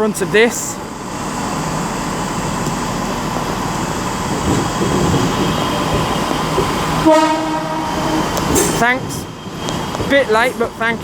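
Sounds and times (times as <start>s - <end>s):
electric train rumbling: 0.0s - 11.0s
train horn blast: 7.0s - 8.7s.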